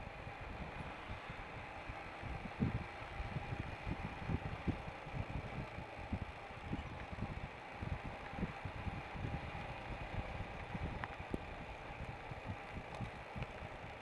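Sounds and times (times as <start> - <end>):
motorcycle running: 0.0 - 14.0
wind buffeting microphone: 0.0 - 14.0.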